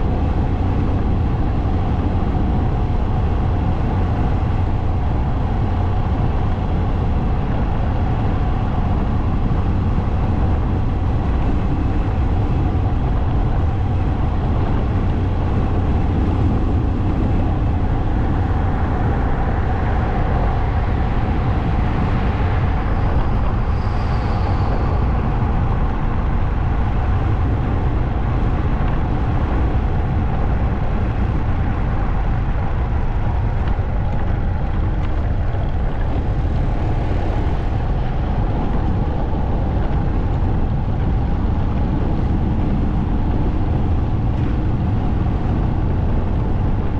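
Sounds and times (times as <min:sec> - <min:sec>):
wind and road noise: 0:00.0 - 0:46.9
passing traffic rush: 0:09.2 - 0:46.9
high squeal: 0:22.7 - 0:25.6.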